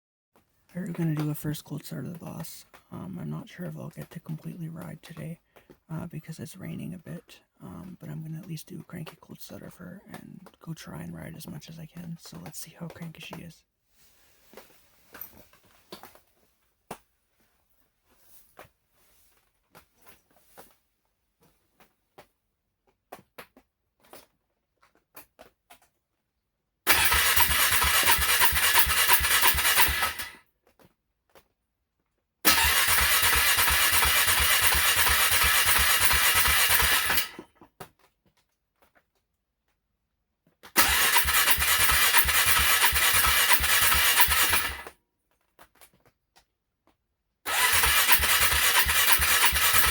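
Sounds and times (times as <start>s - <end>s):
engine cranking without starting: 26.9s - 30.4s, 32.5s - 37.6s, 40.8s - 44.9s, 47.5s - 49.9s.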